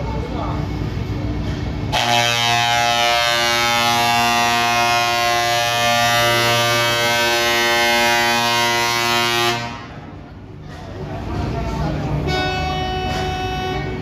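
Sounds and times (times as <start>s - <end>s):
truck horn blast: 1.9s - 10.0s, 12.2s - 14.0s.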